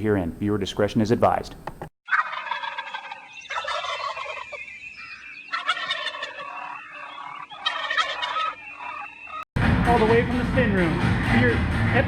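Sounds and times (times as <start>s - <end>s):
turkey gobbling: 2.1s - 9.4s.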